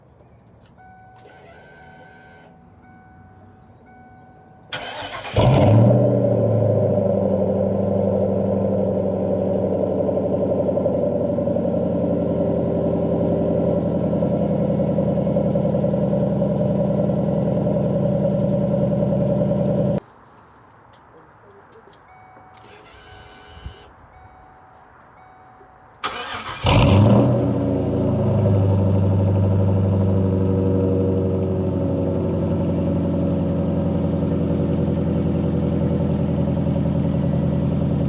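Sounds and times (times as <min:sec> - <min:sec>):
car engine fast idle: 0:04.8 - 0:07.1, 0:26.0 - 0:28.5.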